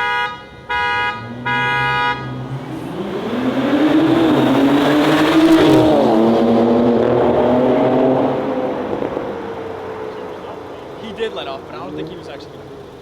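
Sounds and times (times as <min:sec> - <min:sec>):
car engine accelerating: 0:01.0 - 0:13.0.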